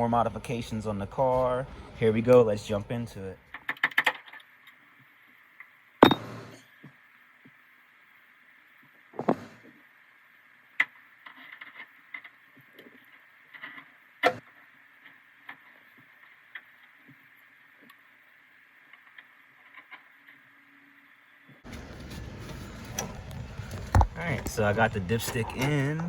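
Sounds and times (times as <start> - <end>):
faint steady hum: 0.0 - 3.8, 4.4 - 26.0
loud thumps: 6.0 - 6.6, 9.2 - 9.6.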